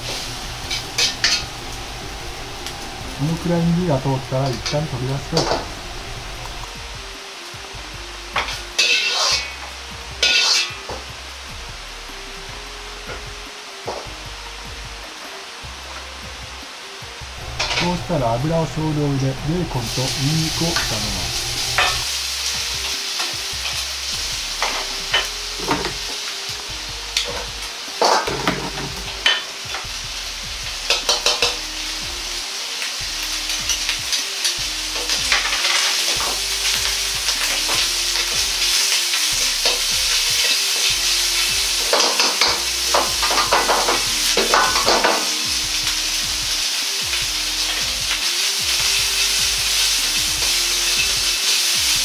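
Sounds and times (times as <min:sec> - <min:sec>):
metal ladle scraping wok: 0:00.0 - 0:03.2, 0:08.8 - 0:11.0, 0:17.4 - 0:17.9, 0:20.8 - 0:22.4
food sizzling in oil: 0:00.0 - 0:52.0.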